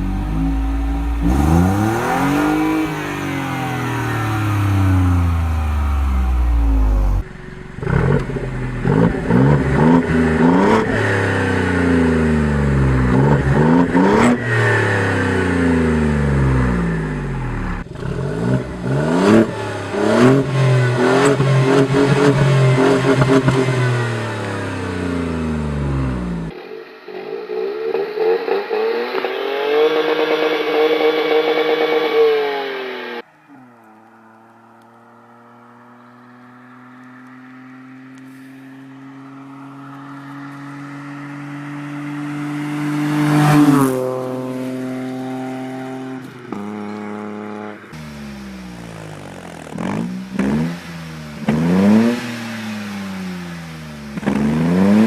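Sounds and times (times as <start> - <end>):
engine exhaust cracks: 0.0 - 25.4, 46.2 - 55.0
car engine revving through gears: 0.0 - 26.6, 27.3 - 33.3, 34.2 - 55.0
thin engine revving: 0.0 - 39.2, 40.5 - 55.0.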